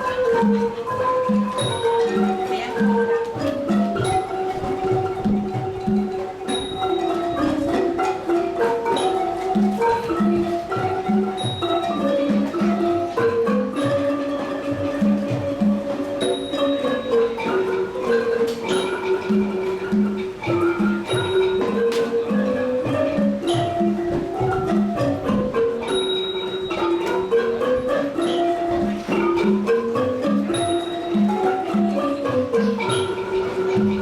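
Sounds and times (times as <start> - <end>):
wooden xylophones playing fast melody: 0.0 - 34.0.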